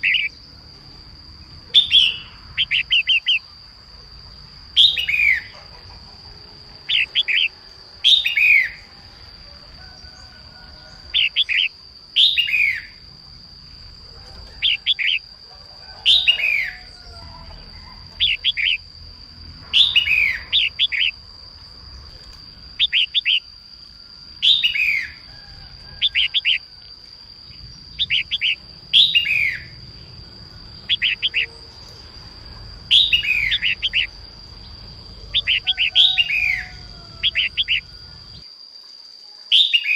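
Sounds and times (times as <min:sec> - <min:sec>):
bird chirping calls: 0:00.0 - 0:00.4, 0:01.7 - 0:03.6, 0:04.8 - 0:08.9, 0:10.9 - 0:13.0, 0:14.0 - 0:18.9, 0:19.6 - 0:21.2, 0:22.2 - 0:23.5, 0:24.4 - 0:25.2, 0:26.0 - 0:26.7, 0:27.5 - 0:38.1, 0:39.5 - 0:39.9
steady high whine: 0:00.0 - 0:38.5.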